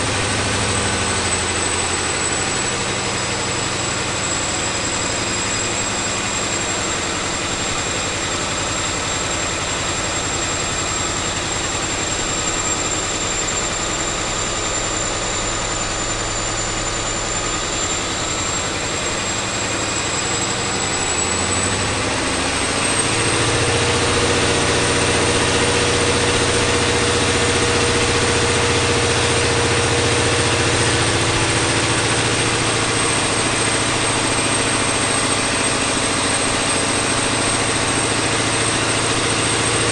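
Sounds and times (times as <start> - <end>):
diesel engine running: 0.0 - 39.9
turbo whine: 0.0 - 39.9.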